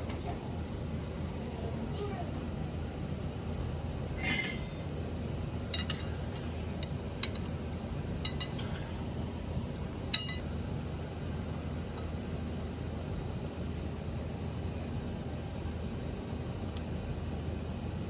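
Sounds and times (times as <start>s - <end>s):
steady low hum: 0.0s - 18.0s
utensil scrape: 4.1s - 4.8s, 5.8s - 6.9s, 8.3s - 9.1s
dishes and utensils clinking: 4.2s - 4.8s, 5.7s - 7.5s, 8.2s - 9.0s, 10.1s - 10.4s.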